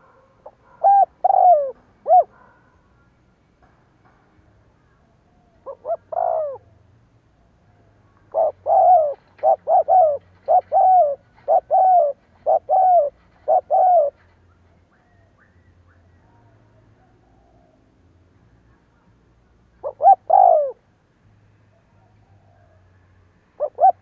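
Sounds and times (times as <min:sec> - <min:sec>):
dove cooing: 0:00.0 - 0:02.7, 0:05.3 - 0:06.8, 0:08.3 - 0:15.6, 0:19.8 - 0:20.8, 0:23.6 - 0:24.0.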